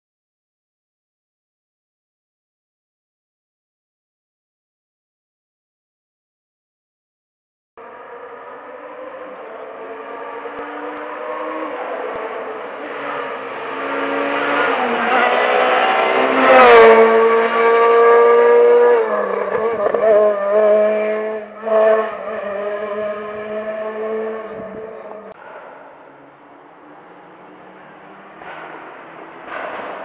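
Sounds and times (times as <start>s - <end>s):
rally car engine passing: 7.8s - 30.0s.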